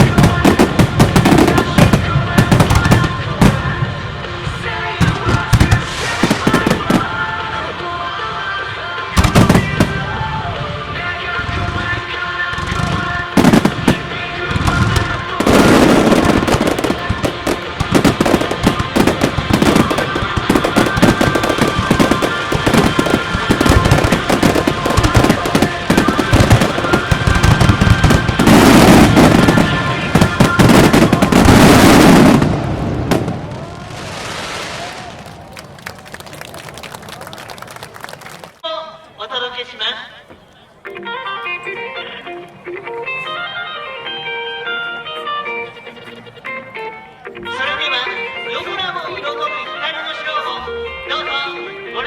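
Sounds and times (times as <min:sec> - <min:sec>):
song over loudspeakers: 0:00.0 - 0:33.5, 0:38.6 - 0:52.0
firework shells bursting and crackling: 0:13.4 - 0:37.0.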